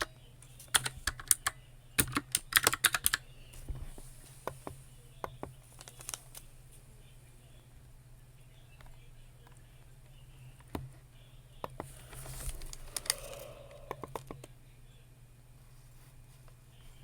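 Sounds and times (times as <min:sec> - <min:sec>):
keyboard keys clicking: 0:00.7 - 0:03.2.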